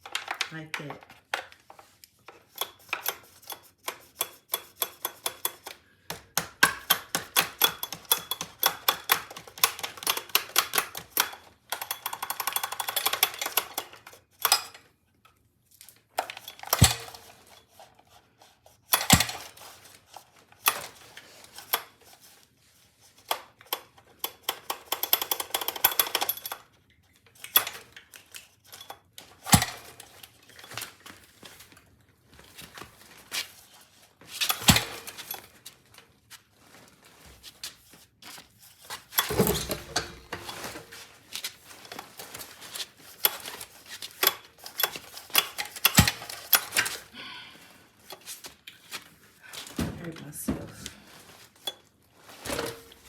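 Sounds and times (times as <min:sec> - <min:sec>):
pull starter clicking and rattling: 0:39.2 - 0:40.6.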